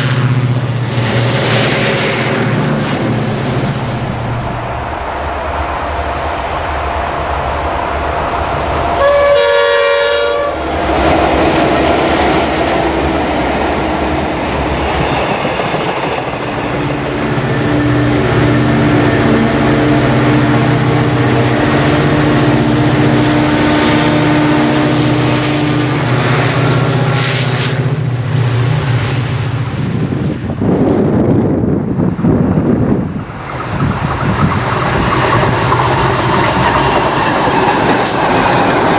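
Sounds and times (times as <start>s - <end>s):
locomotive horn blast: 9.0s - 10.8s, 17.6s - 28.0s
diesel engine drone: 17.1s - 30.8s.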